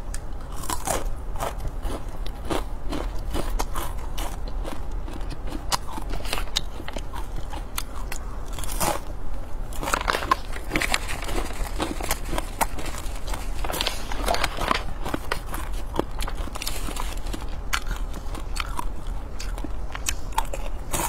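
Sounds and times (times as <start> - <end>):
crunching and chewing: 0.0 - 21.0
plastic snack packet rustling: 9.7 - 18.5.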